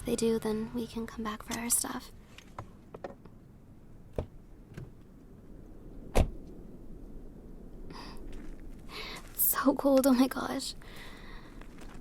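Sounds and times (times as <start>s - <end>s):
car door shutting thump: 6.1s - 6.4s.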